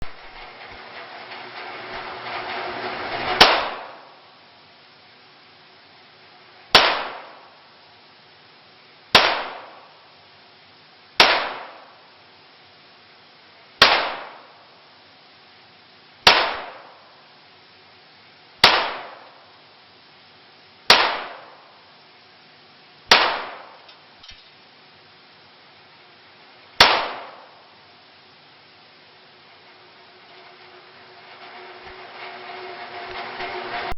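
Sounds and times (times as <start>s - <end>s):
pistol shots indoors: 26.8s - 27.4s.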